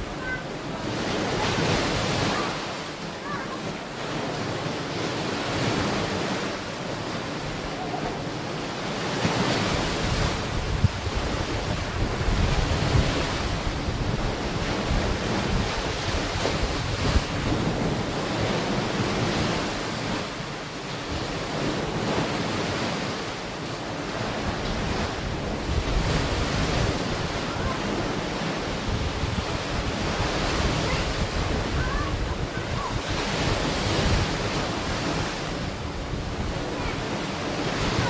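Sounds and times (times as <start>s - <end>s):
sea waves washing onto beach: 0.0s - 38.0s
wind buffeting microphone: 9.4s - 20.3s, 24.1s - 38.0s.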